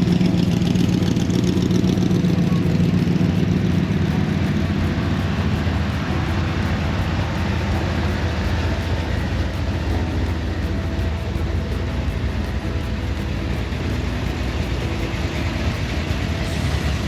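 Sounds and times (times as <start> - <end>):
car engines rumbling: 0.0 - 17.0.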